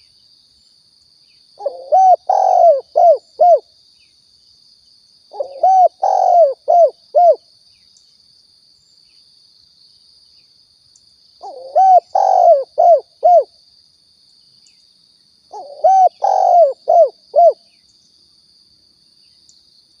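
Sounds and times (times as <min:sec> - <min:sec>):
dove cooing: 0:01.6 - 0:03.6, 0:05.3 - 0:07.4, 0:11.4 - 0:13.5, 0:15.5 - 0:17.6.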